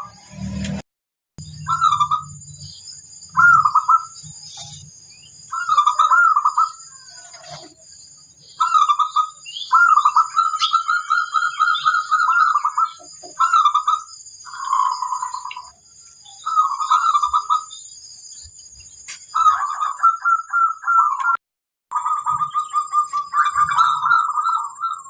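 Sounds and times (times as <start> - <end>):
high-pitched whine: 0.0 - 0.8, 1.4 - 20.2
dove cooing: 3.3 - 4.8, 5.5 - 7.8, 8.6 - 15.7, 16.4 - 17.7, 19.4 - 21.4, 22.0 - 25.0.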